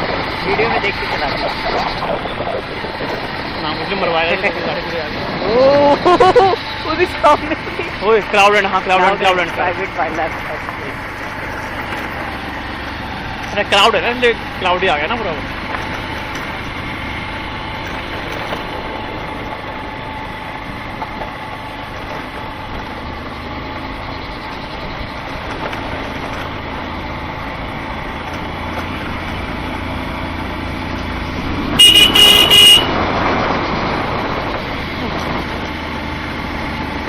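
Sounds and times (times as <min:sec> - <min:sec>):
wind noise: 0:00.0 - 0:06.6, 0:31.1 - 0:37.0
motorcycle running on road: 0:00.0 - 0:37.0
vehicle horn honking: 0:31.8 - 0:33.0.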